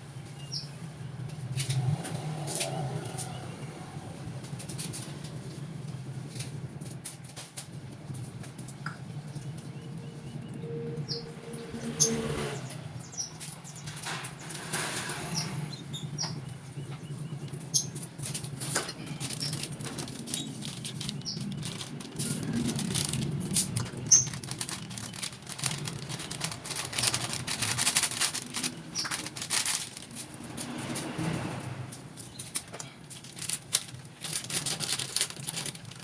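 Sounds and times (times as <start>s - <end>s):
birds flapping wings: 17.9s - 36.0s
clicks and rattles: 18.0s - 31.1s, 31.9s - 36.0s.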